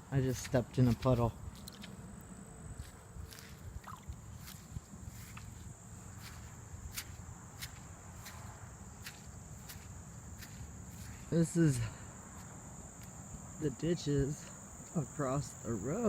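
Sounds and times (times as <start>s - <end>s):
high-pitched insect chorus: 0.0s - 16.0s
footsteps on wet ground: 0.1s - 15.0s.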